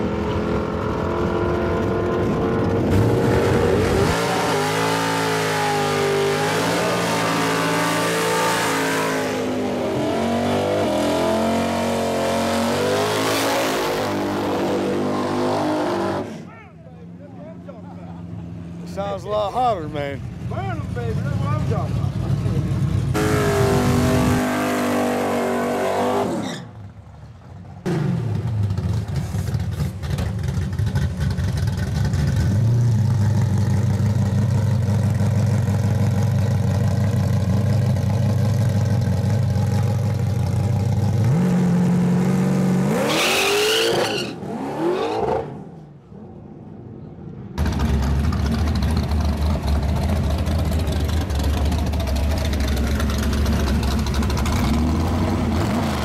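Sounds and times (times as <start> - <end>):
drag car engine revving and launching: 0.0 - 16.5, 22.2 - 27.1, 27.8 - 36.5, 40.9 - 46.6, 47.5 - 56.0
car engine idling low: 47.6 - 54.5.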